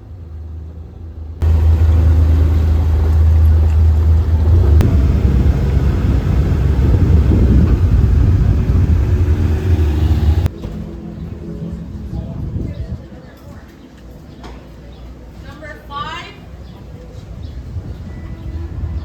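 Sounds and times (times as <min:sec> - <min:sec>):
moving vehicle rumble: 0:00.0 - 0:10.5.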